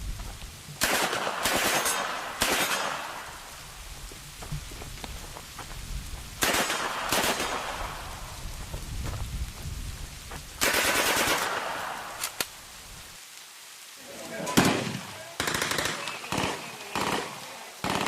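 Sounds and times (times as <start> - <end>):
rain-like hiss: 0.0 - 18.0
automatic gunfire burst: 0.8 - 3.0, 6.4 - 7.7, 10.6 - 11.7, 14.6 - 18.0
gunshots echoing: 0.8 - 3.3, 6.4 - 8.0, 14.4 - 18.0.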